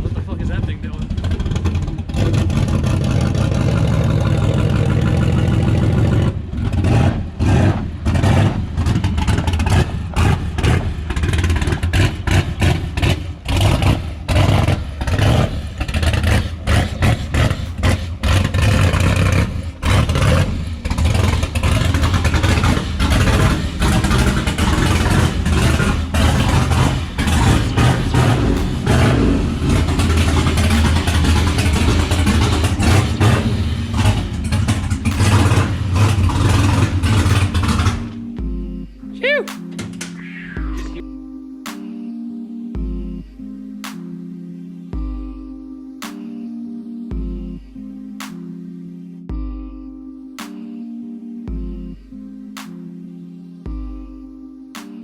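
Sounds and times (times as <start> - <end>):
car engine running loud: 0.0 - 38.5.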